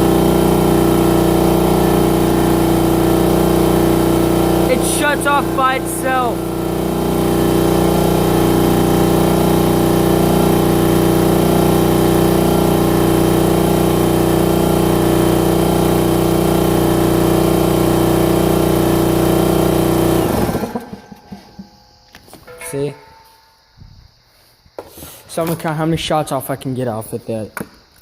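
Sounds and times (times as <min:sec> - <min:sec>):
air compressor pump running: 0:00.0 - 0:22.4.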